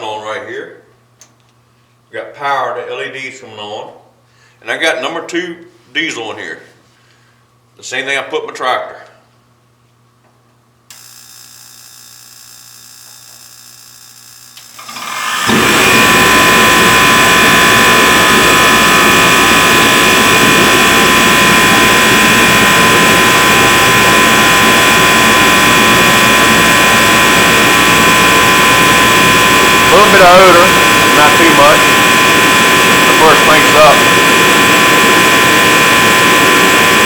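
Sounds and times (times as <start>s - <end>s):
heater whine: 0.0s - 37.0s
portable heater roaring: 10.9s - 37.0s.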